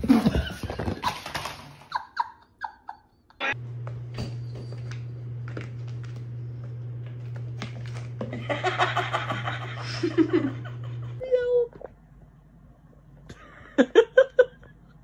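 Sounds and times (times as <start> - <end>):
steady low hum: 3.4 - 15.0.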